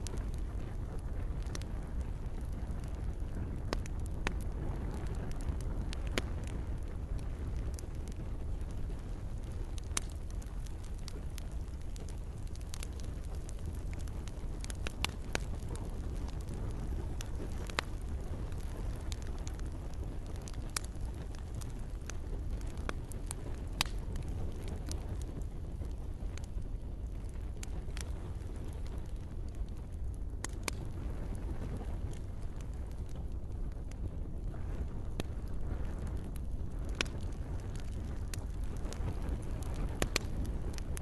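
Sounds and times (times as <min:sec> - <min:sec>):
campfire crackling and popping: 0:00.0 - 0:41.0.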